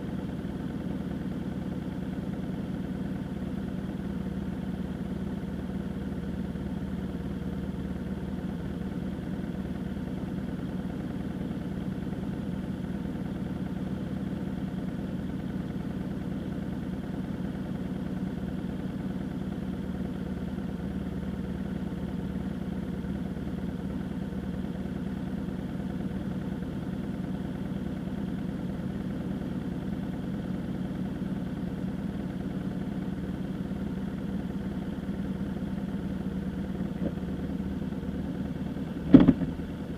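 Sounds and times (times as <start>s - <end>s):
vehicle engine droning: 32.3s - 39.9s.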